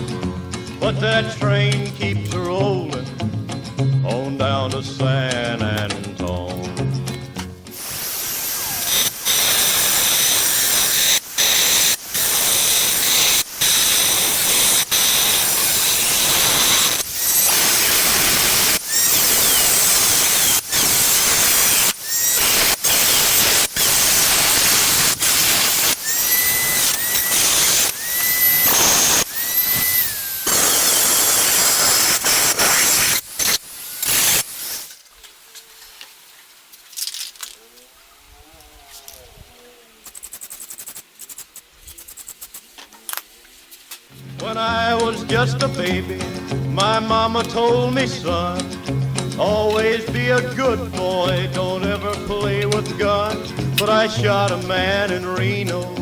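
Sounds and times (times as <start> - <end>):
paint spraying hiss: 7.8 - 35.3, 40.0 - 42.8.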